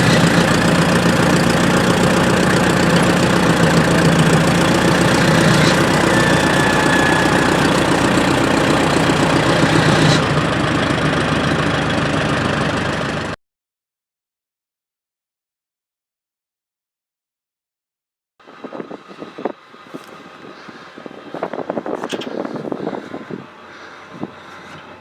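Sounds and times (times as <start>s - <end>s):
engine running steadily: 0.0s - 13.4s, 18.4s - 25.0s.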